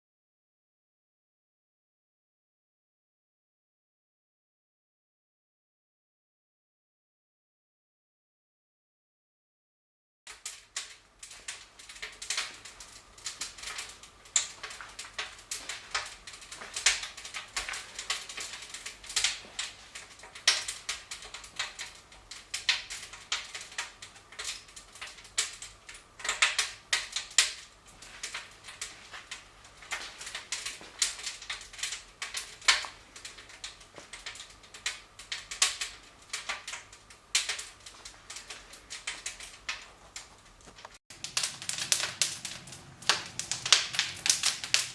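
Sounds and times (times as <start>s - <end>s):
wood fire crackling: 10.3s - 44.9s.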